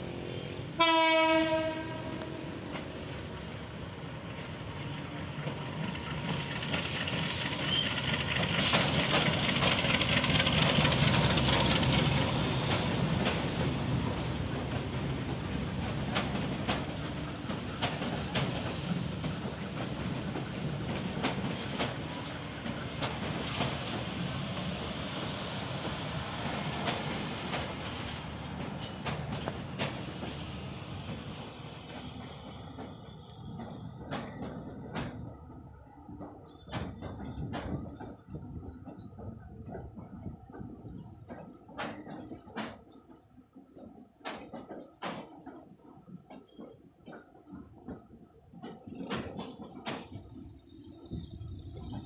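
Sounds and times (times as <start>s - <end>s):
diesel locomotive rumble: 0.0s - 42.8s, 47.6s - 52.0s
wheels clicking over rail joints: 2.2s - 52.0s.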